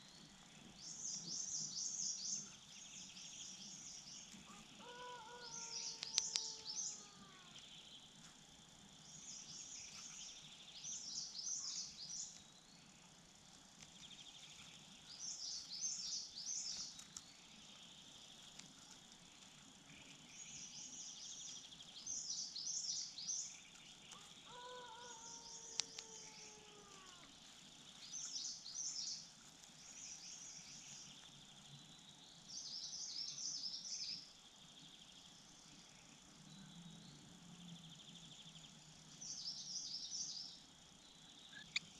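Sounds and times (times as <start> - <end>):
high insect drone: 0.0 - 41.9
songbirds chirping: 0.0 - 41.9
low falling bird call: 4.2 - 7.8, 23.8 - 29.2.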